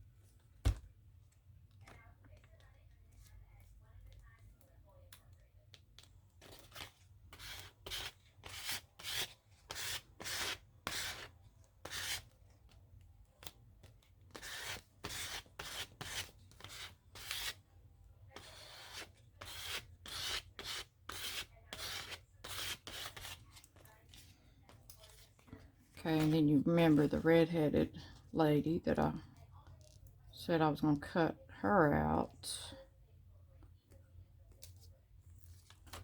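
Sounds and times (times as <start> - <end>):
paper being rubbed: 6.8 - 12.2, 14.3 - 17.6, 18.4 - 23.4.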